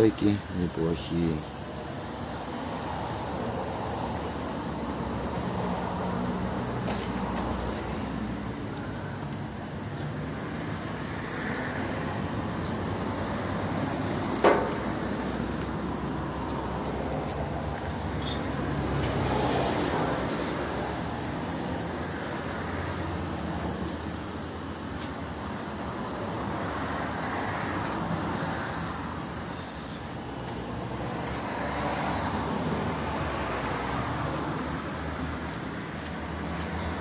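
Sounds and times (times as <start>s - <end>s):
insects chirping: 0.0s - 37.0s
sharp knock: 14.4s - 14.9s.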